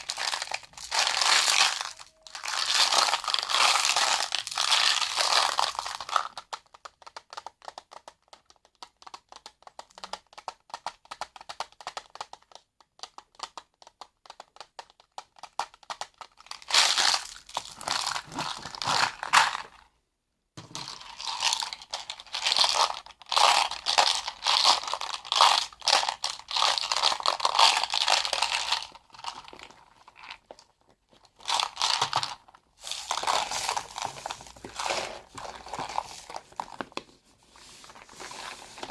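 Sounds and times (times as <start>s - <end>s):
crinkling and crunching handling: 0.0s - 6.6s, 16.4s - 19.9s, 20.6s - 38.9s.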